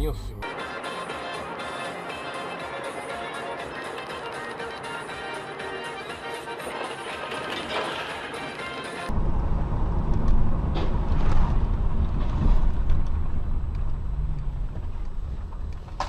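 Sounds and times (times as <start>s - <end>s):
music: 0.0s - 9.1s
car engine and tyre rumble: 9.1s - 16.0s.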